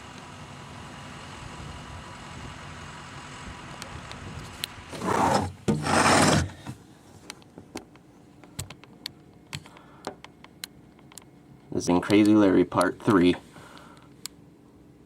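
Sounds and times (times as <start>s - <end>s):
rushing rubbing noises: 4.9s - 6.8s
light clicks and taps: 7.2s - 13.0s.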